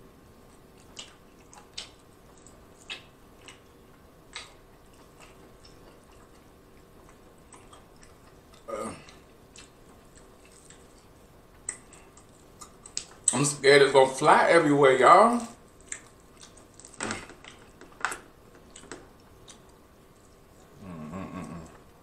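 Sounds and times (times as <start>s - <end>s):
wet mouth clicks and smacks: 0.8s - 3.6s.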